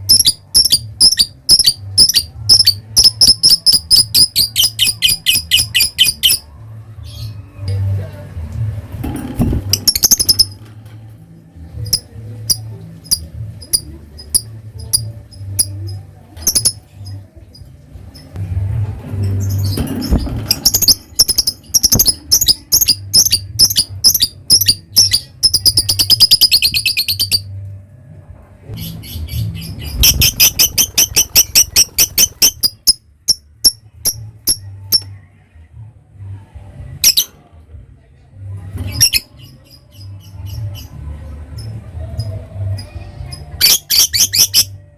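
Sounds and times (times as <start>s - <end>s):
lovebird chattering chirps: 0.1s - 6.4s, 9.7s - 10.6s, 11.9s - 17.2s, 20.6s - 27.5s, 29.9s - 35.0s
lovebird clicking chirps: 16.4s - 16.8s.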